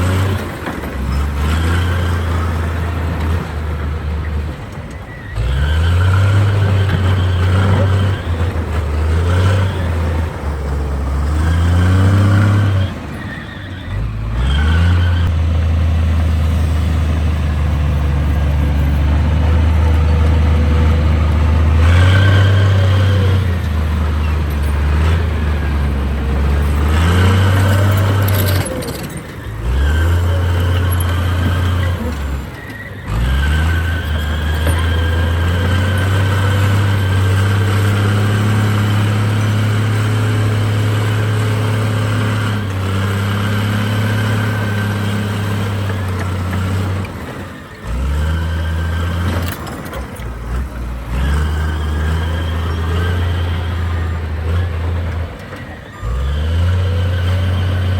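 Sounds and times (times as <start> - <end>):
heavy diesel engine rumbling: 0.0 - 57.9.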